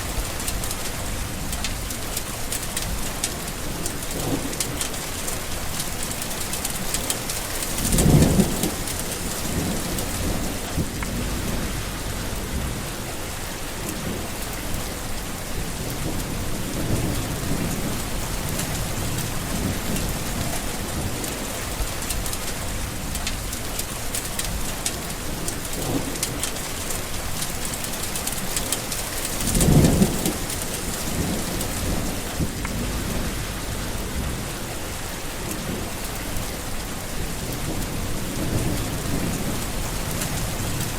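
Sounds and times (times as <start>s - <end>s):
heavy rain: 0.0s - 40.9s
rolling thunder: 6.7s - 23.2s, 29.3s - 40.9s.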